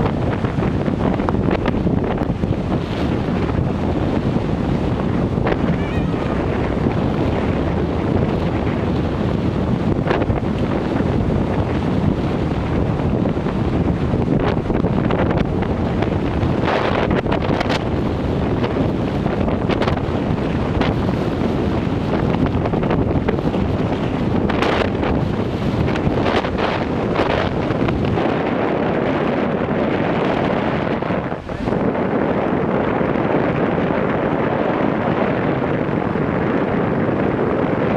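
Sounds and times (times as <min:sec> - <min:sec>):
crackling wind gusts: 0:00.0 - 0:37.9
wind buffeting microphone: 0:00.0 - 0:37.9.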